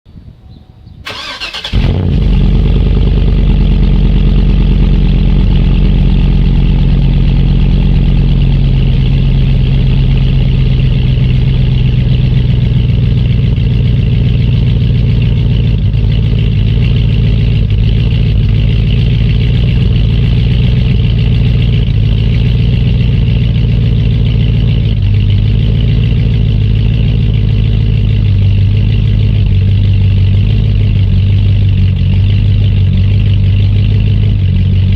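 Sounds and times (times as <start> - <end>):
starter motor cranking: 1.1 - 2.3
engine idling loudly: 1.1 - 34.9.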